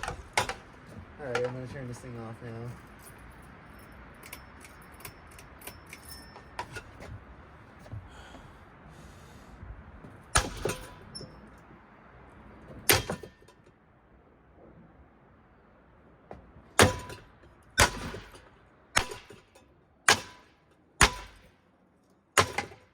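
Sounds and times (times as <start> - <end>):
ceiling fan clicking and rattling: 0.0 - 8.0
steady background noise: 0.0 - 22.9
loud bangs with ringing tone: 10.3 - 11.3, 12.9 - 13.5, 16.8 - 21.5.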